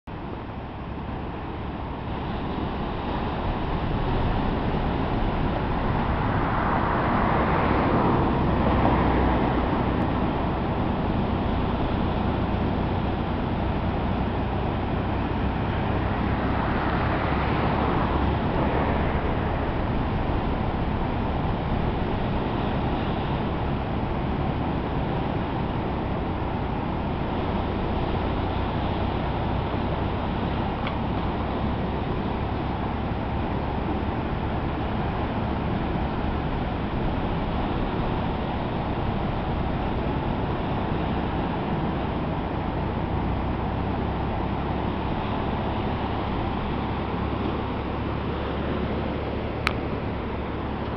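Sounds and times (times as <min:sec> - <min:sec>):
rough surf breaking: 0:00.1 - 0:50.9
steady low hum: 0:00.1 - 0:50.9.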